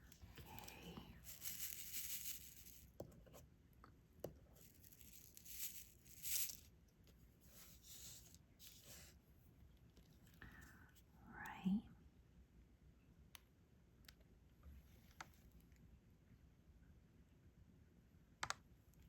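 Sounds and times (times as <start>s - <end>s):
plastic film rustling: 0.4s - 2.8s, 4.6s - 6.6s.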